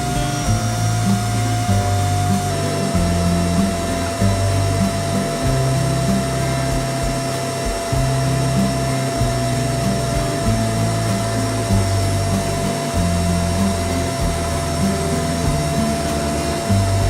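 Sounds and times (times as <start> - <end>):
background music with bass line: 0.0 - 17.0.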